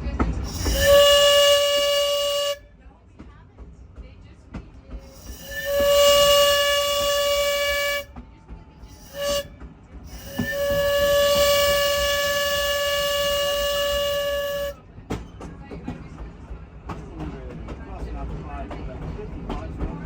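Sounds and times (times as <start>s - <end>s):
locomotive air horn blasts: 0.4s - 2.7s, 5.0s - 8.2s, 8.9s - 14.8s.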